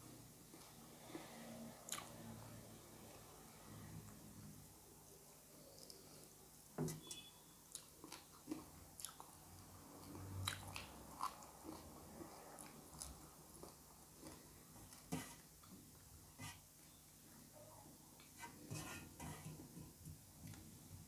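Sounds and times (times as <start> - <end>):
person chewing with mouth clicks: 1.9 - 2.2, 7.7 - 9.4, 10.0 - 15.0.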